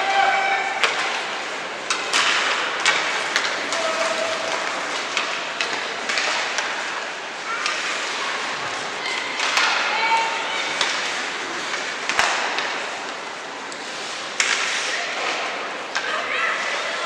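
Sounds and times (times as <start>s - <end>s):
crowd murmur: 2.7s - 17.0s.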